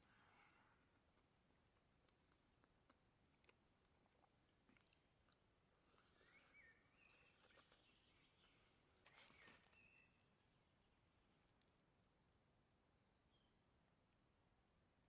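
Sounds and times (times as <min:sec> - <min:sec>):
soft rustling: 0:05.8 - 0:09.9
faint bird chirps: 0:05.8 - 0:11.2, 0:12.8 - 0:14.1.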